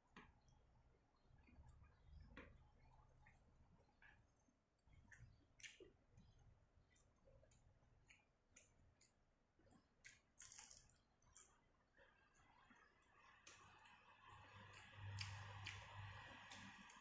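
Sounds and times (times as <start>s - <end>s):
crunchy bite of fried food: 10.0s - 11.6s.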